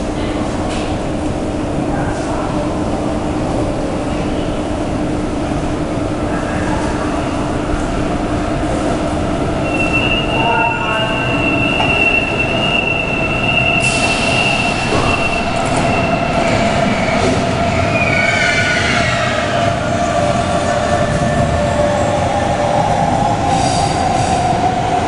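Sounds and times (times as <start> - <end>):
train wheel squeal: 9.6 - 19.7.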